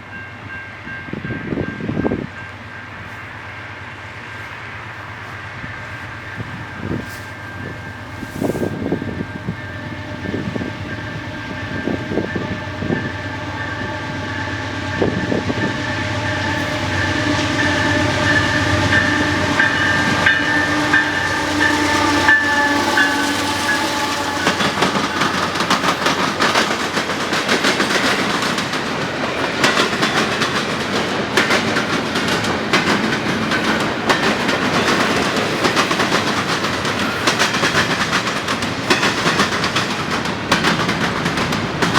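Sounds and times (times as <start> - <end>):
train rumbling past: 0.0 - 41.9
train horn chord: 4.4 - 26.2
wheels clacking over rails: 10.2 - 41.9.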